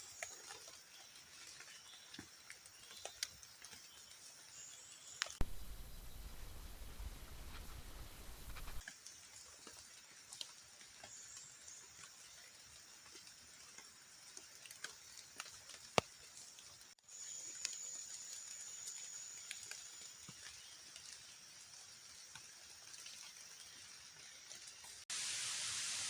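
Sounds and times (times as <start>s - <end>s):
light ticks and drips: 0.0s - 5.5s, 8.5s - 25.1s
heavy rain hiss: 4.6s - 8.8s, 24.8s - 26.0s
thin high whine: 5.4s - 8.8s.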